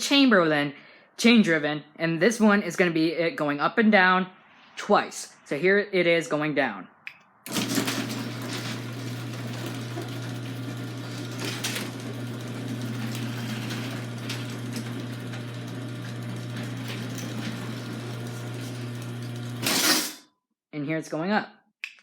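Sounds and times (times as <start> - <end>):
garage door opener motor hum: 7.5 - 20.1.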